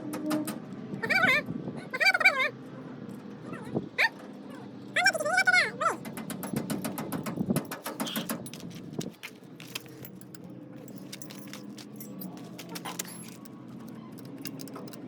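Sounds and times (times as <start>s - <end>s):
metal tools clinking: 7.6s - 15.0s.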